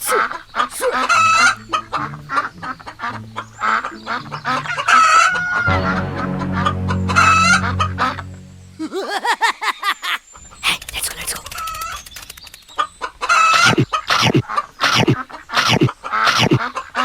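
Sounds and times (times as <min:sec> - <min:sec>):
chickens clucking: 0:00.0 - 0:05.9, 0:11.6 - 0:17.0.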